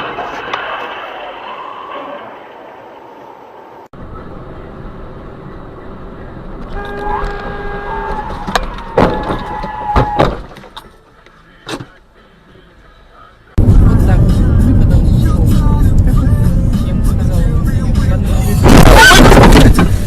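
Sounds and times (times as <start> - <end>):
car engine and road noise: 0.0 - 9.2, 10.3 - 20.0
loud crash impacts: 18.6 - 20.0.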